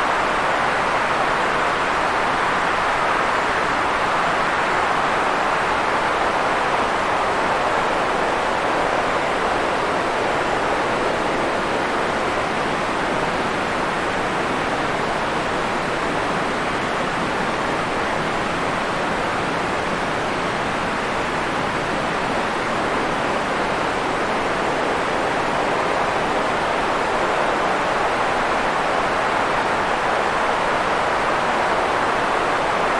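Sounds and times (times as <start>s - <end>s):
steady white noise hiss: 0.0s - 32.9s.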